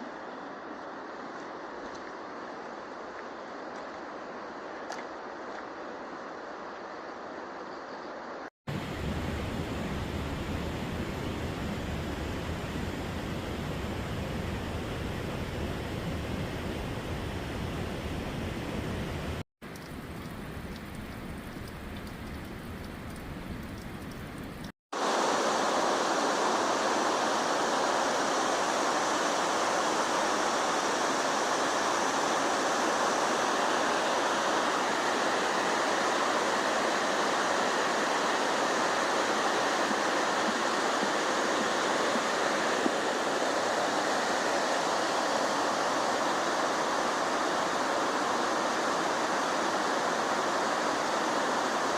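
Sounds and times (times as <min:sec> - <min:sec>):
waterfall rushing: 0:25.0 - 0:51.9.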